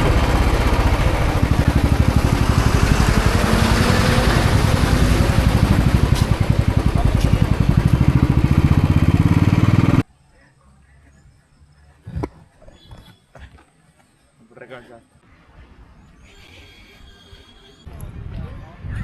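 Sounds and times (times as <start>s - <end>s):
motorcycle engine running: 0.0s - 10.0s
rush of noise: 0.0s - 10.0s.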